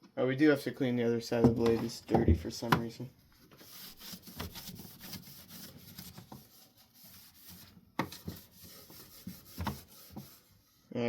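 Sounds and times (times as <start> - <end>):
cloth rubbing wooden fan blade: 3.4 - 10.5.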